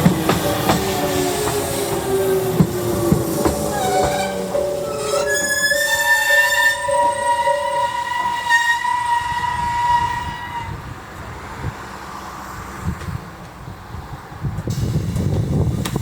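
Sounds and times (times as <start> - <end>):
high steady train squeal: 0.0 - 13.3, 14.6 - 16.0
low train rumble: 0.0 - 16.0
level crossing alarm ringing: 2.0 - 10.1.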